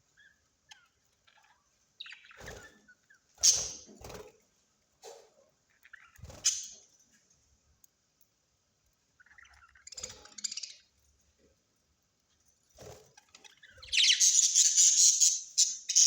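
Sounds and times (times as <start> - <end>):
soft chirps: 9.1 - 11.2, 13.3 - 16.0
parrots squawking: 13.4 - 16.0.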